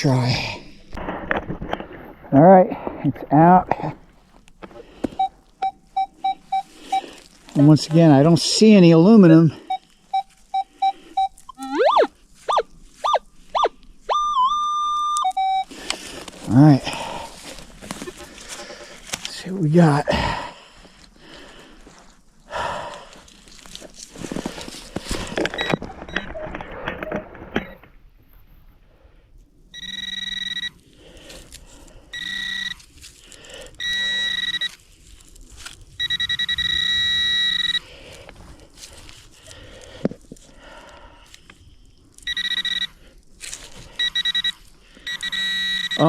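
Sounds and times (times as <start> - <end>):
digging in snowy ground: 0.0 - 46.0
metal detector high-pitched tone: 5.2 - 7.1, 9.7 - 15.7, 29.8 - 30.8, 32.2 - 32.8, 33.8 - 34.8, 36.0 - 37.8, 42.2 - 43.0, 44.0 - 46.0.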